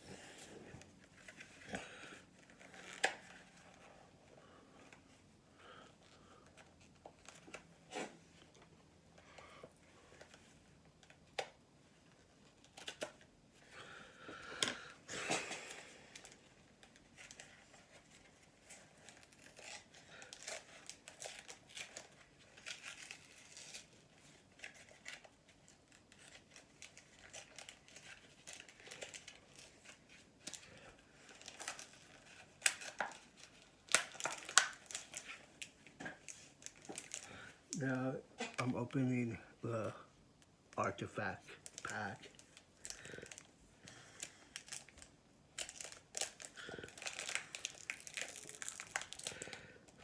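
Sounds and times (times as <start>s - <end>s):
wrapper crinkling and tearing: 12.5s - 13.2s, 15.3s - 39.3s, 40.8s - 50.0s.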